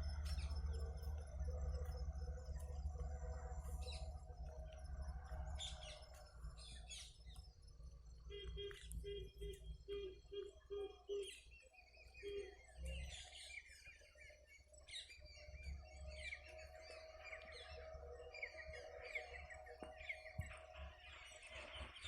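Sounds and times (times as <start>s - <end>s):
low hum: 0.0s - 10.8s
small birds chirping: 0.0s - 22.0s.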